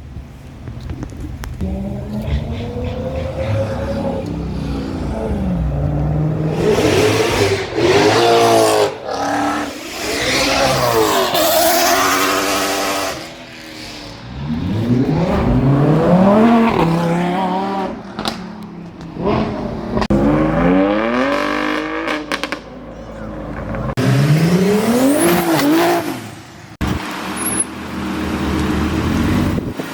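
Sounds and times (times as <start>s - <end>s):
car engine revving: 1.6s - 22.7s.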